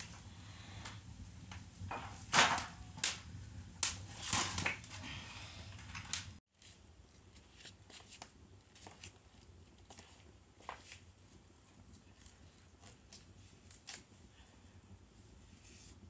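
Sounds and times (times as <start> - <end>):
fire crackling and popping: 0.0 - 5.0, 5.7 - 6.4.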